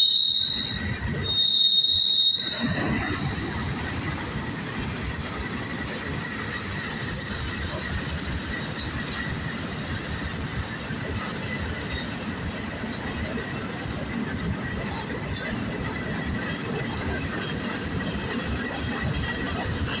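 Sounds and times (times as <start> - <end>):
high-pitched wheel squeal: 0.0 - 12.8
train wheels rumbling on rail: 0.0 - 20.0.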